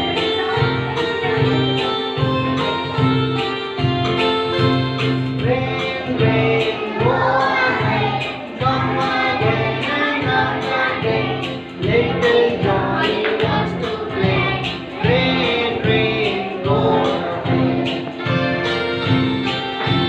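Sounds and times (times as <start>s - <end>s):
bouncy instrumental backing: 0.0s - 20.0s
person singing: 5.3s - 18.7s.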